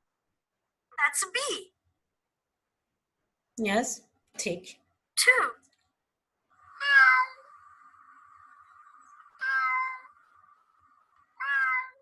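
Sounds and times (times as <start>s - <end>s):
cat meowing: 6.7s - 7.6s, 9.2s - 10.2s, 11.2s - 12.0s.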